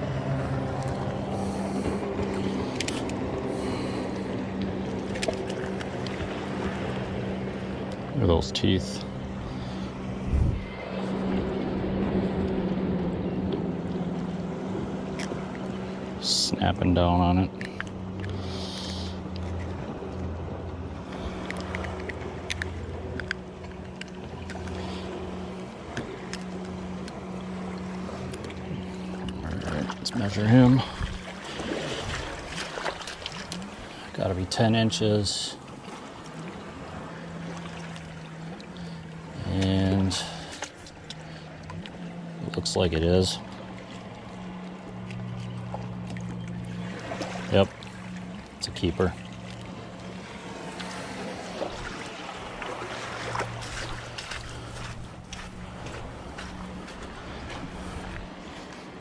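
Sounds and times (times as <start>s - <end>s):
motor humming: 0.0s - 34.2s, 35.6s - 59.0s
engine running: 0.0s - 59.0s
light clicks and taps: 21.4s - 24.8s.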